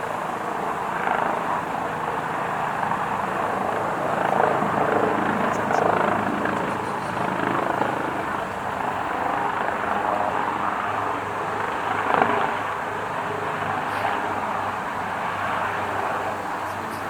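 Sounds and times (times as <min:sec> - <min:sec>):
helicopter flying overhead: 0:00.0 - 0:17.0.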